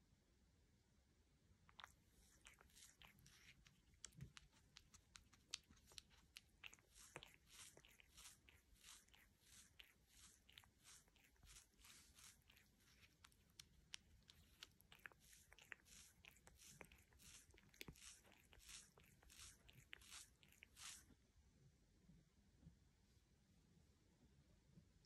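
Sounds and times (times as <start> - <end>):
cat licking its fur: 1.6 - 21.2.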